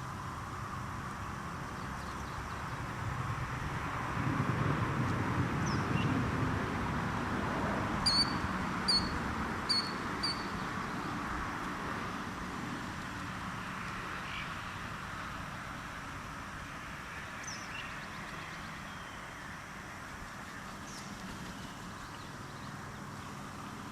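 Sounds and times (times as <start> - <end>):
killdeer sharp high calls: 8.0 - 10.6.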